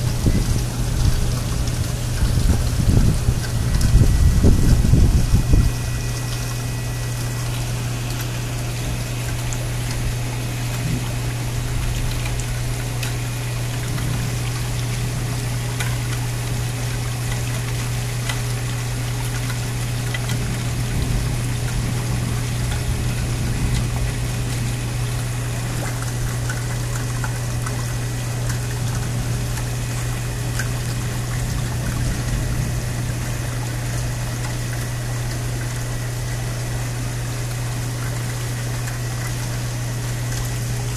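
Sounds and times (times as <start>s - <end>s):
rain pouring: 0.0s - 40.9s
water trickling: 0.0s - 40.9s.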